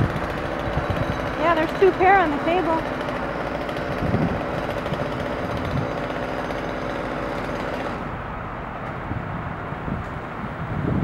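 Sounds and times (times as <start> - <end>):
chainsaw running: 0.0 - 8.2.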